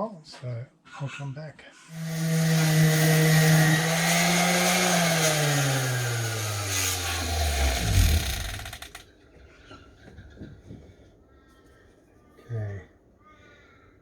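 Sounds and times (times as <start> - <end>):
motor winding down: 1.9 - 9.0.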